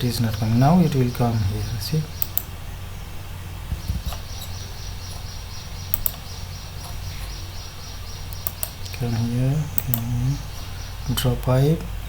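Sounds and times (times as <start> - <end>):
low electrical hum: 0.0 - 12.0
computer mouse clicks: 2.2 - 2.5, 3.7 - 5.3, 5.9 - 7.3, 8.3 - 9.0, 9.8 - 10.2.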